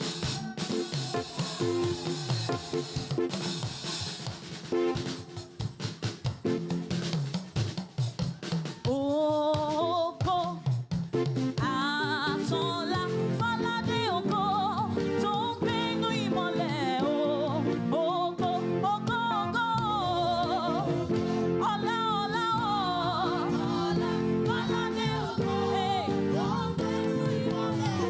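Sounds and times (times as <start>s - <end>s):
person singing: 0.0s - 2.9s, 11.6s - 28.0s
gospel music: 0.0s - 28.0s.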